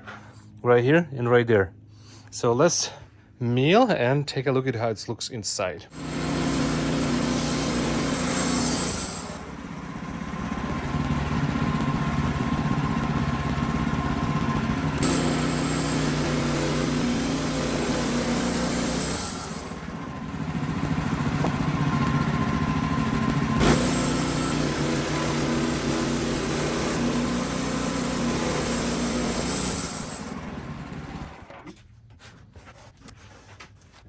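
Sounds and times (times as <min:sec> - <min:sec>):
band sawmill sawing a log: 0:05.9 - 0:31.5.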